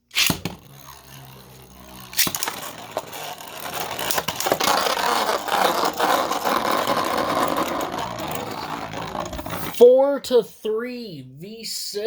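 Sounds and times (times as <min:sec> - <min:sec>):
spinning tops whirring: 0:00.0 - 0:09.8
spinning tops clacking together: 0:00.1 - 0:09.7.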